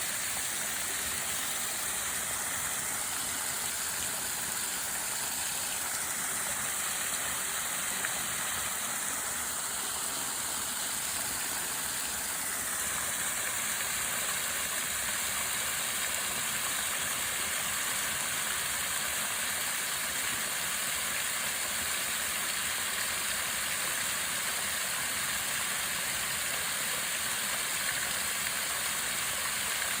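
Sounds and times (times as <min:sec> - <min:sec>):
rushing water hiss: 0:00.0 - 0:30.0.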